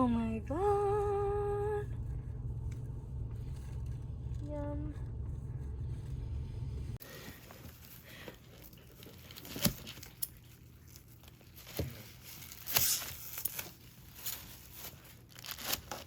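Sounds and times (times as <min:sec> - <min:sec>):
packaging rustling and crinkling: 0:07.0 - 0:16.0.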